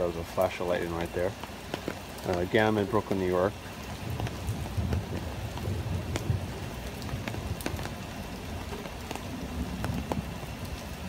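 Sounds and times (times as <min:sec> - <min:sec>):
heavy rain: 0:00.0 - 0:11.0
sharp raindrop clicks: 0:00.0 - 0:11.0
low rumble of thunder: 0:03.8 - 0:11.0.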